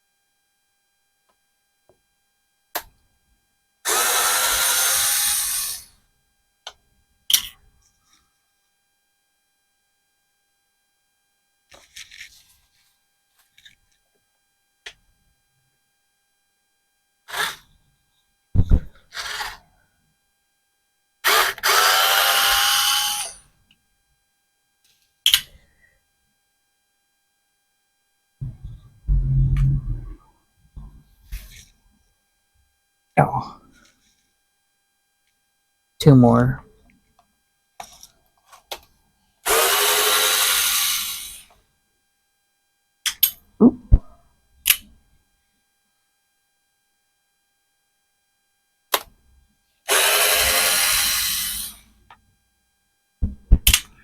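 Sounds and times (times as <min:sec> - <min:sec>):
power drill running: 0:03.9 - 0:05.9, 0:17.3 - 0:17.6, 0:19.1 - 0:19.6, 0:21.2 - 0:23.4, 0:39.4 - 0:41.5, 0:49.9 - 0:51.8
sharp click: 0:53.6 - 0:53.9.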